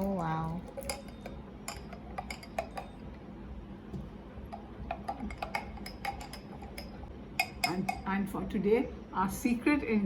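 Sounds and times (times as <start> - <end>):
utensil clinking against glass: 0.7 - 3.1, 4.9 - 8.0.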